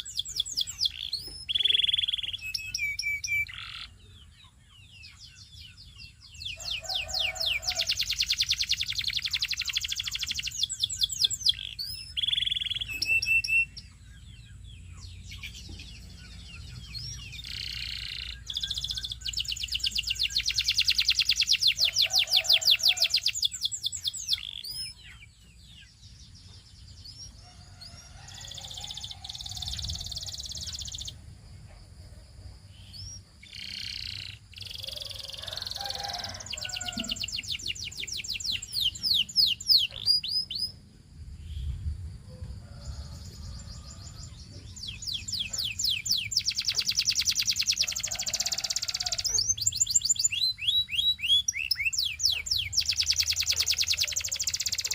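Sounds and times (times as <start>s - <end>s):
canary singing: 0.0s - 31.2s, 32.8s - 40.8s, 42.7s - 54.9s.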